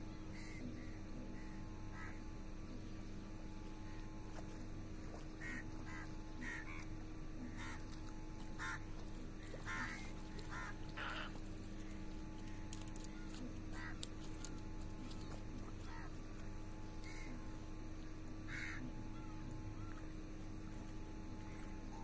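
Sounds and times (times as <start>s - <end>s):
low hum: 0.0s - 22.0s
bird calls: 9.4s - 11.4s.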